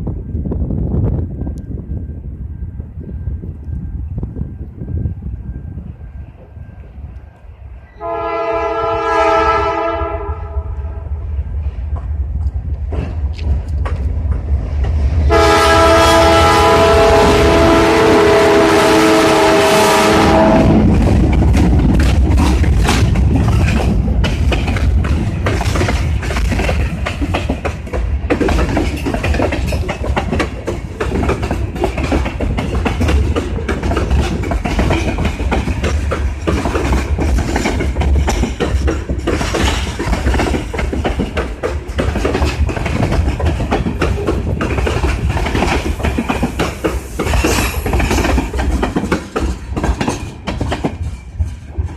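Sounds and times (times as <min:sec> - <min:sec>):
freight train rumbling past: 0:00.0 - 0:51.9
wheels clicking over rail joints: 0:11.9 - 0:17.7, 0:20.8 - 0:51.9.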